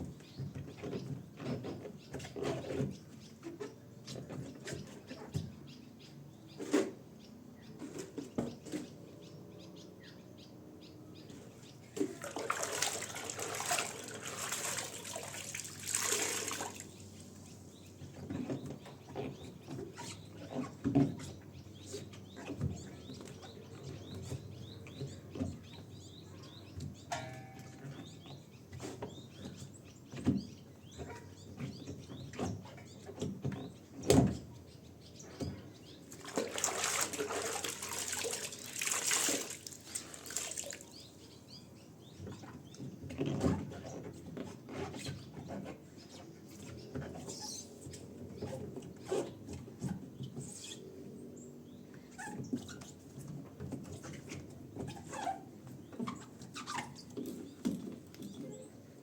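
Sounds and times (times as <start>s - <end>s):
small birds chirping: 0.0s - 59.0s
splashing running water: 12.0s - 17.0s, 36.1s - 41.0s.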